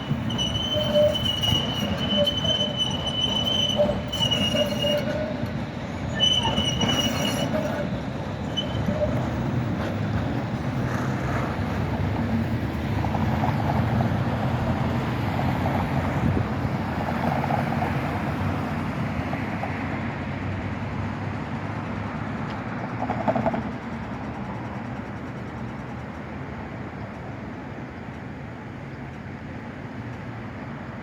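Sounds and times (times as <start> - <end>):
tram wheels and motor rumbling: 0.0 - 31.0.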